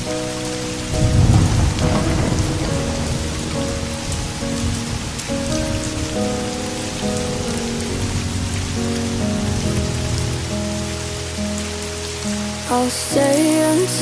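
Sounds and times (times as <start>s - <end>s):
soft piano notes: 0.0s - 14.0s
steady rain hiss: 0.0s - 14.0s
low rumble of thunder: 0.8s - 10.8s.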